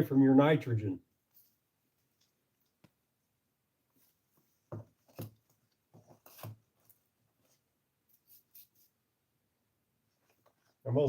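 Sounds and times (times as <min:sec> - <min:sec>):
handling rustles and scrapes: 0:01.2 - 0:02.8, 0:03.9 - 0:09.0.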